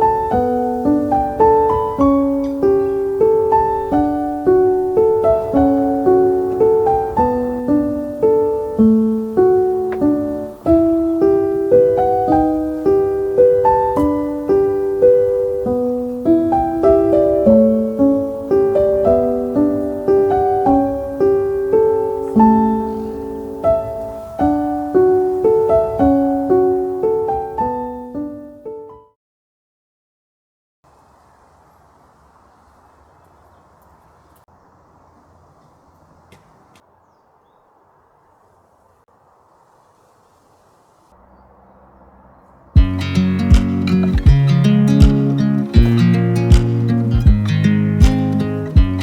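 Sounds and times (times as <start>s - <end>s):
gentle solo piano music: 0.0s - 29.1s, 42.8s - 49.0s.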